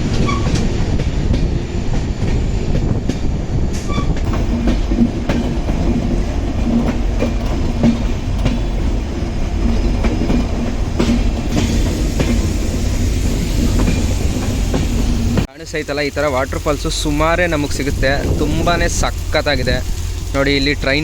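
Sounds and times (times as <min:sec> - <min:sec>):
wheels clacking over rail joints: 0:00.0 - 0:15.5
train rumbling: 0:00.0 - 0:21.0.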